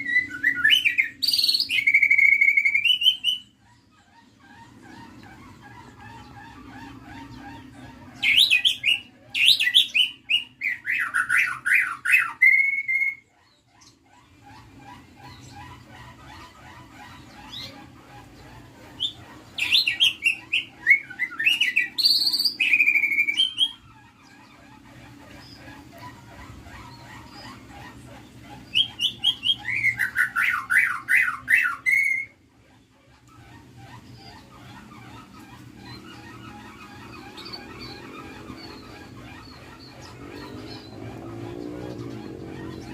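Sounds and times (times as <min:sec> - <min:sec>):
bird singing whistles: 0:00.0 - 0:03.5
bird whistled song: 0:00.0 - 0:03.6, 0:05.8 - 0:14.0, 0:18.4 - 0:24.7, 0:28.7 - 0:32.4
soft bird chirping: 0:00.0 - 0:42.9.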